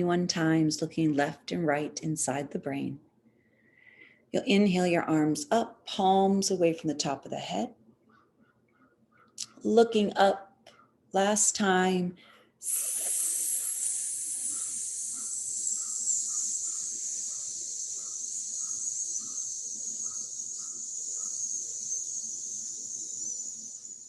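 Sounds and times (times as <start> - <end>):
person hissing on exhale: 12.6 - 17.3.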